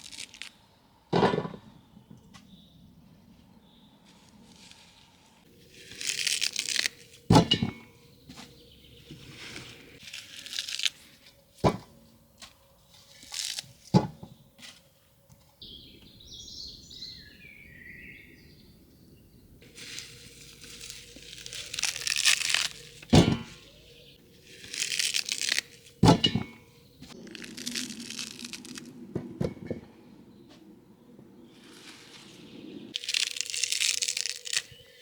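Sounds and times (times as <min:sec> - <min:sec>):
rustling crinkling handling noise: 0:04.0 - 0:07.3, 0:08.3 - 0:11.6, 0:19.6 - 0:26.0, 0:27.0 - 0:28.9, 0:32.9 - 0:35.0.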